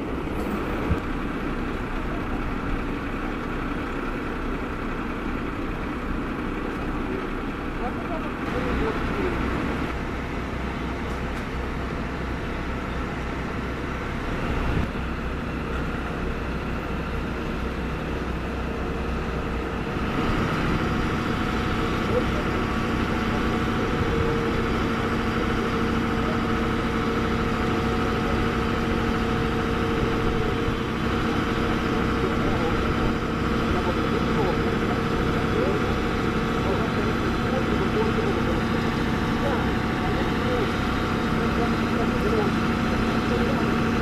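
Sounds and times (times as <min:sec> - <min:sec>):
fire truck engine running: 0:00.0 - 0:44.0.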